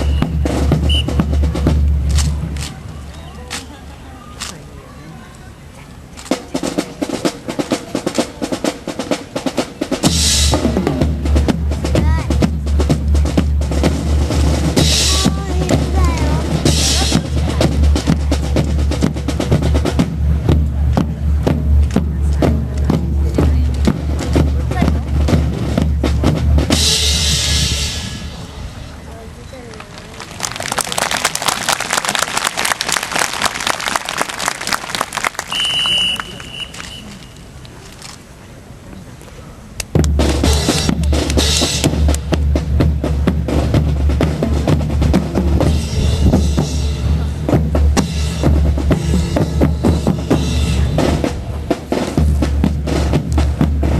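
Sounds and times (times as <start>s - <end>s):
snare drums playing cadence: 0.0s - 2.7s, 39.9s - 42.7s
bass drums: 0.0s - 2.8s, 6.6s - 29.2s, 39.9s - 53.9s
cymbal crash: 26.8s - 29.0s
crowd applauding: 29.6s - 37.3s.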